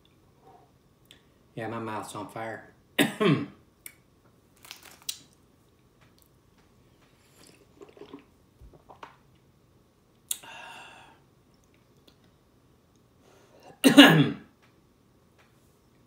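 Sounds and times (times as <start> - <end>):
man chewing: 7.2 - 9.0
long breath out: 10.4 - 11.2.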